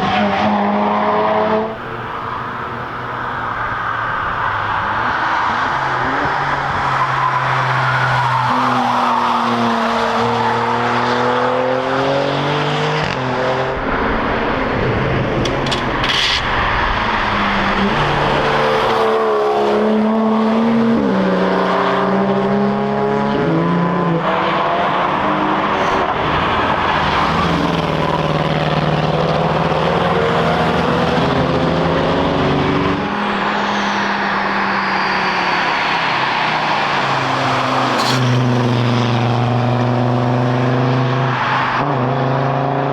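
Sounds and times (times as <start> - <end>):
race cars passing at speed: 0.0 - 42.9.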